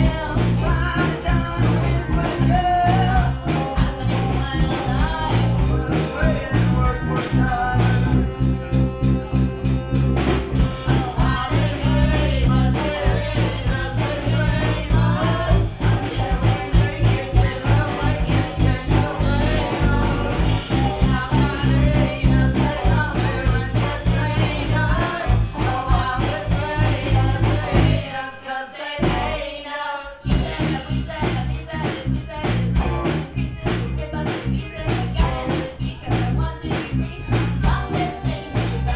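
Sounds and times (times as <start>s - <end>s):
steady drum beat: 0.0s - 28.1s, 29.0s - 29.4s, 30.3s - 38.9s
guitar: 0.0s - 28.2s, 30.2s - 38.9s
accordion: 0.0s - 38.9s
bass: 0.0s - 38.9s
person singing: 0.0s - 38.9s.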